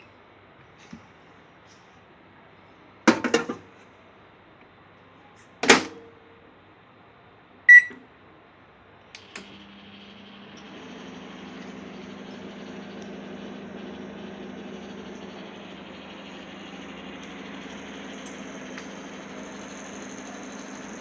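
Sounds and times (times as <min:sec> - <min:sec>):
keypad beep: 0:07.7 - 0:08.0
clicks: 0:09.1 - 0:21.0
microwave oven humming: 0:09.1 - 0:21.0.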